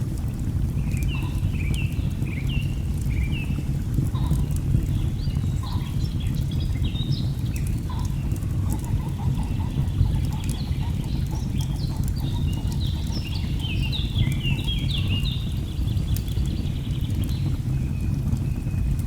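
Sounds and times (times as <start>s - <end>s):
songbird singing: 5.0s - 18.8s
log fire crackling: 7.1s - 17.5s.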